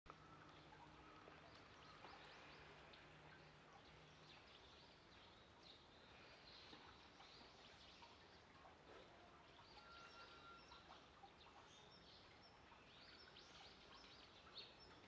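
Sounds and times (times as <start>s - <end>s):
small birds chirping: 9.4s - 15.0s.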